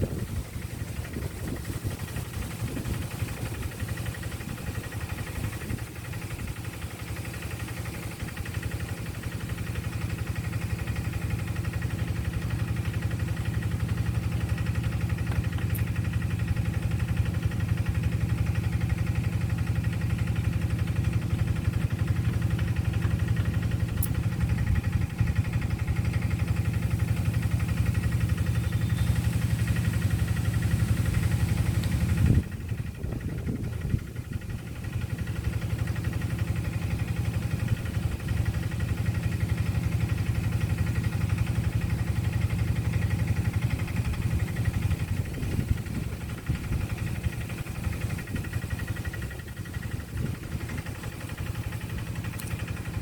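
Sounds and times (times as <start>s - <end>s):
motor engine idling: 0.0s - 53.0s.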